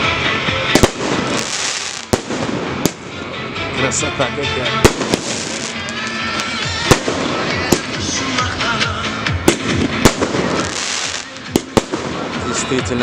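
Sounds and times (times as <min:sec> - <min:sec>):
fireworks crackling: 0:00.6 - 0:03.4, 0:04.8 - 0:13.0
fireworks bangs: 0:00.7 - 0:03.2, 0:04.8 - 0:08.6, 0:09.4 - 0:12.6.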